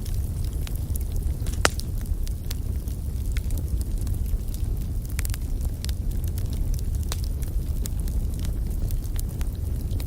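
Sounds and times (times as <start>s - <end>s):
wood fire crackling: 0.0s - 10.0s
sharp pop from fire: 1.4s - 1.9s.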